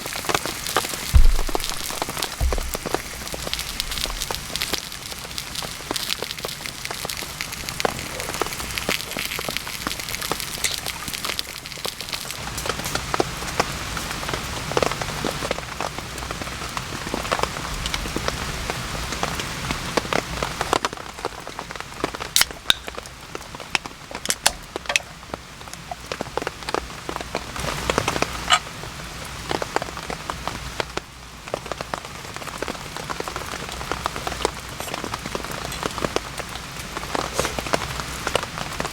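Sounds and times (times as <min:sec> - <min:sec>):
rain hissing: 0:00.0 - 0:38.9
raindrops clicking and tapping: 0:00.0 - 0:38.9.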